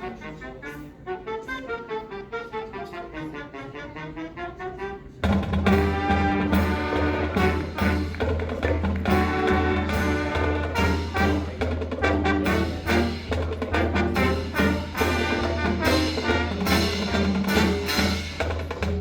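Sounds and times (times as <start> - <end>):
low brass: 0.0 - 19.0
marching band playing: 0.0 - 19.0
drum hits: 5.3 - 19.0.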